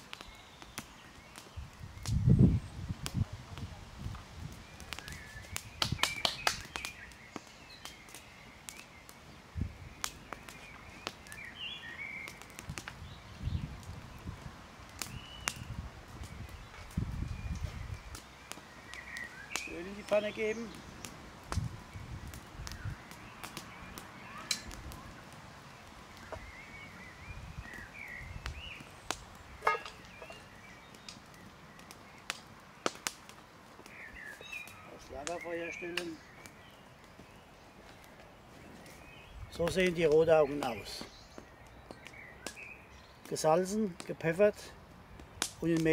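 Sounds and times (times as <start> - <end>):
campfire wood crackling: 0.0 - 45.9
bird chirping: 4.7 - 13.7, 16.3 - 21.1, 26.2 - 32.3, 33.8 - 43.8.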